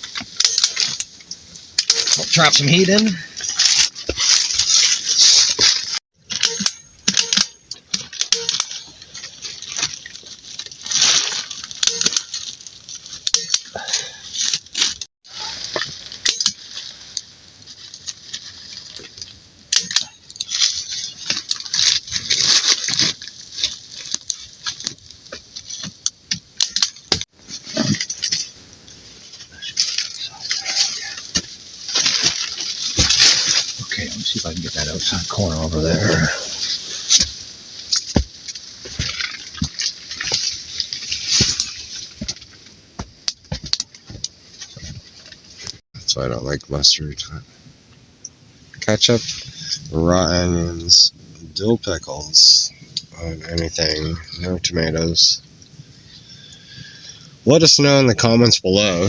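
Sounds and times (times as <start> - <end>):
plastic tarps crinkling: 0.0 - 45.8.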